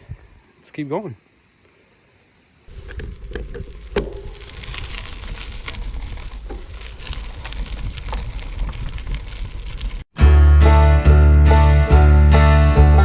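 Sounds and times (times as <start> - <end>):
wind rumble on microphone: 0.0 - 0.4, 2.7 - 10.1
bicycle tyres crunching on gravel: 2.7 - 10.1.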